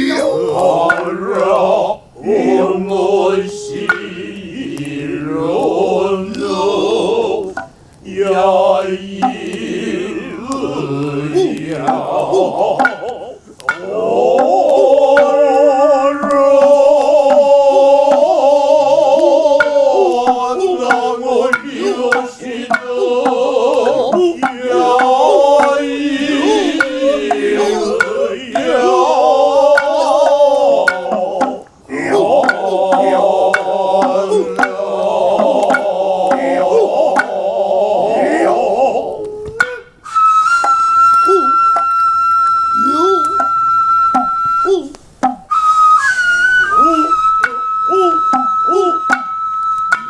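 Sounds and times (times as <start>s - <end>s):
wavering chanting: 0.0s - 50.0s
hand drum strikes: 9.2s - 9.6s, 12.8s - 15.4s, 19.6s - 28.9s, 29.7s - 31.7s, 32.4s - 34.8s, 45.2s - 45.5s.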